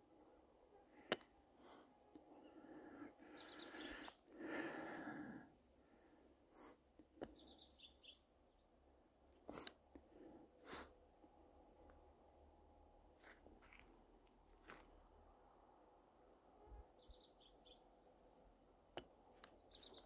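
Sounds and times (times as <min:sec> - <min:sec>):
songbird singing: 0:00.0 - 0:20.0.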